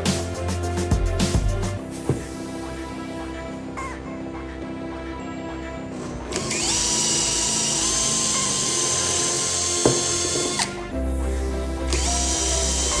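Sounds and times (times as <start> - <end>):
background music: 0.0 - 13.0
power tool motor whining: 6.3 - 10.8, 11.9 - 13.0.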